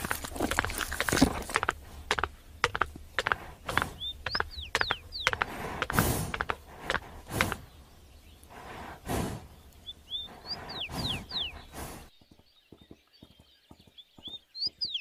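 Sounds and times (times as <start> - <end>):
pony chewing hay: 0.0 - 4.4
small birds chirping: 0.0 - 15.0.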